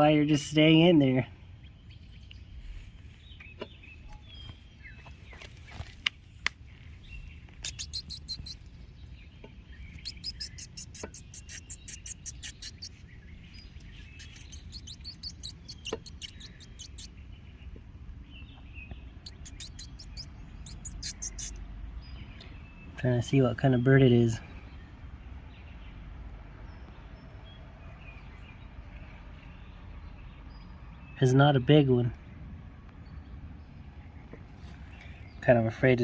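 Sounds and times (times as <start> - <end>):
bird chittering high-pitched: 7.5 - 8.8, 9.8 - 17.2, 19.2 - 21.6.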